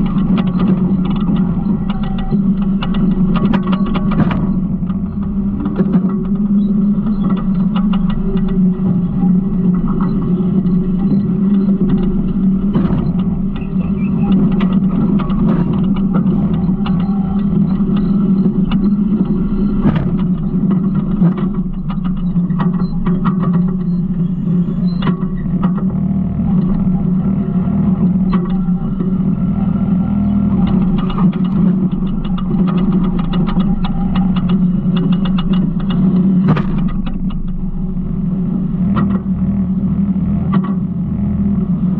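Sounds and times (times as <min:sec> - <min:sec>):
clicks knocks and rattles: 0:00.0 - 0:10.2, 0:11.6 - 0:23.8, 0:30.6 - 0:37.6
garbage truck engine running: 0:00.0 - 0:41.9.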